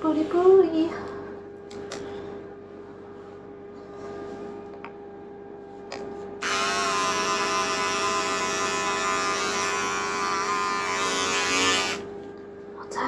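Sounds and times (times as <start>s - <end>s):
electric clippers buzzing: 6.4s - 12.1s.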